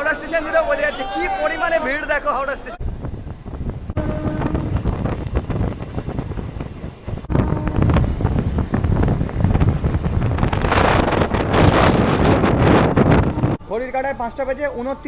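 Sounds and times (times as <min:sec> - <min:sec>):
deep rumble: 0:02.8 - 0:13.6
wind buffeting microphone: 0:02.8 - 0:13.6.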